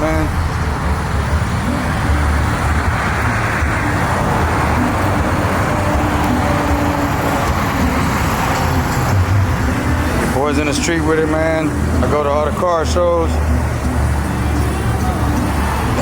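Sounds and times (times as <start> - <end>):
vehicle engines rumbling: 0.0 - 16.0.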